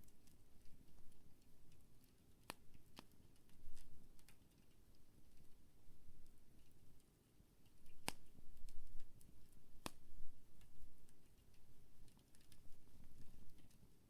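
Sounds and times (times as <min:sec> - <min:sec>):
campfire crackling: 0:00.0 - 0:13.8.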